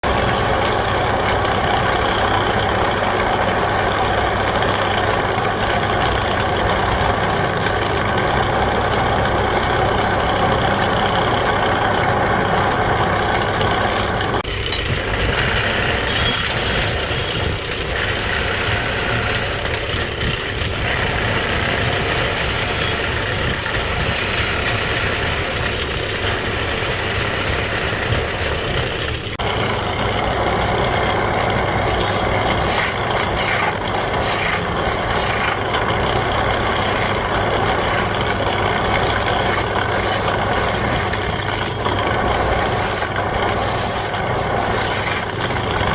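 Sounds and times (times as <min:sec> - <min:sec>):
turning tool cutting wood: 0:00.0 - 0:45.9
wood lathe running: 0:00.0 - 0:45.9.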